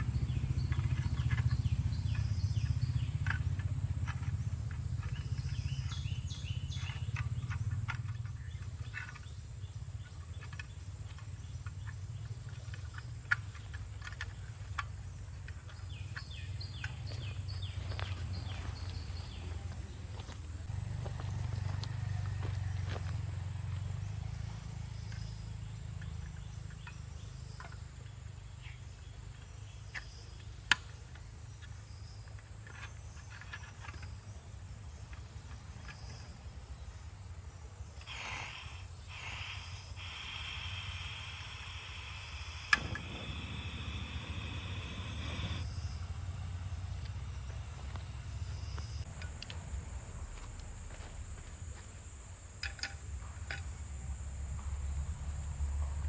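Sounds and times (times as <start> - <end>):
sharp clicks: 38.0 - 45.7
high-pitched insect drone: 38.0 - 56.0.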